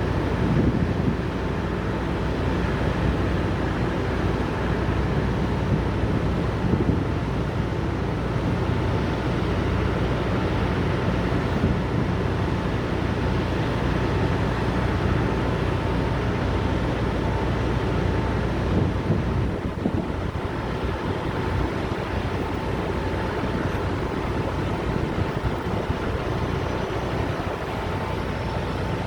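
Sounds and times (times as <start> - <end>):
diesel truck engines idling: 0.0 - 29.0
wind buffeting microphone: 0.0 - 29.0.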